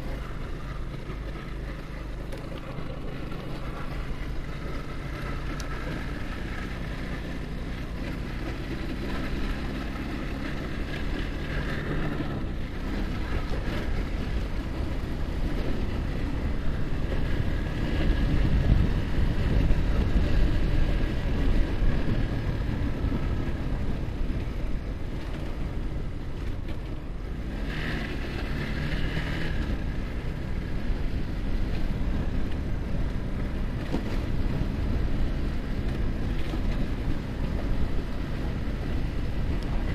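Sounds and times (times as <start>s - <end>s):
motorcycle engine running: 0.0s - 39.9s
wind rushing over microphone: 3.1s - 39.9s.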